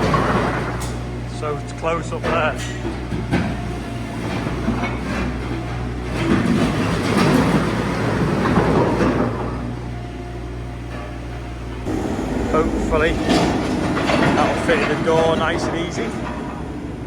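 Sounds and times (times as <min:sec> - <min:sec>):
diesel machine running: 0:00.0 - 0:17.0
concrete rubble scraping and crunching: 0:11.9 - 0:16.8.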